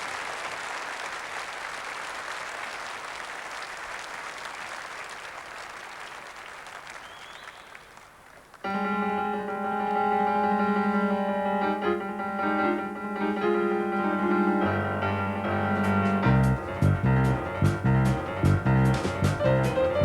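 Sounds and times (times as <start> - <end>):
audience applauding: 0.0 - 8.7
piano chord: 8.7 - 20.0.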